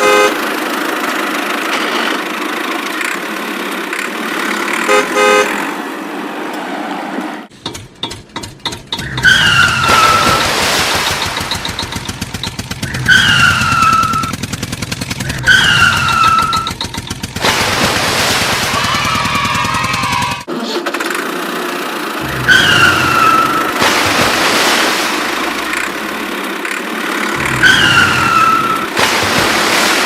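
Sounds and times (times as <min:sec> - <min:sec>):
cartoon horn toot: 0:00.0 - 0:00.5, 0:04.8 - 0:05.6, 0:27.4 - 0:29.0
falling honks: 0:00.0 - 0:00.8, 0:03.9 - 0:06.0, 0:22.2 - 0:23.9, 0:25.2 - 0:29.0
rapid clattering rattle: 0:10.9 - 0:13.0, 0:16.1 - 0:17.8.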